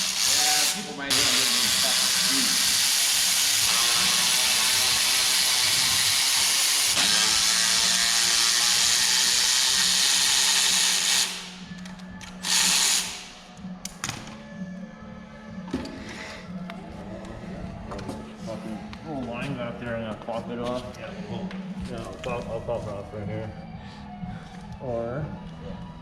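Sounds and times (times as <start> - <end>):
hissing exhaust air: 0.0 - 11.7, 12.4 - 13.4
pneumatic air ratchet running: 0.0 - 13.4.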